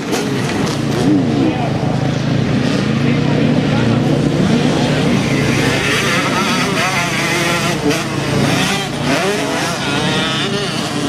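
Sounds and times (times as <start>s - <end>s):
motocross bike engines revving: 0.0s - 11.0s.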